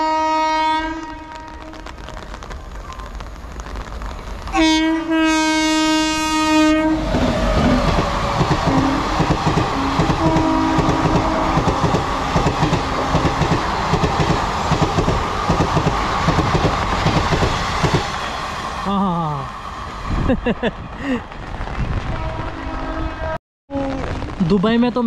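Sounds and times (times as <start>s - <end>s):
locomotive horn: 0.0s - 1.9s, 4.5s - 7.8s, 8.7s - 13.3s, 22.1s - 24.1s
train coaches rushing past: 5.5s - 23.3s.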